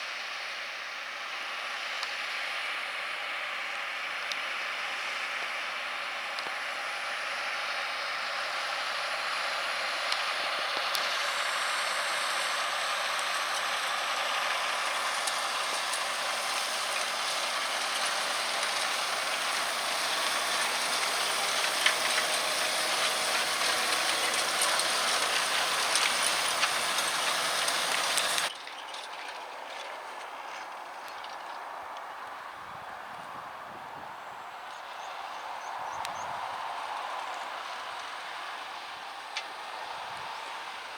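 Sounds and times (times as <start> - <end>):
tractor running: 1.4 - 30.2
plough implements clanking: 13.2 - 30.0.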